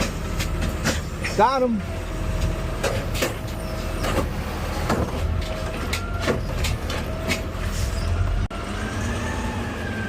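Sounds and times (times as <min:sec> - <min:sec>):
metal clanks and knocks: 0:00.0 - 0:01.4, 0:02.4 - 0:07.6
truck engine rumbling: 0:00.0 - 0:10.0.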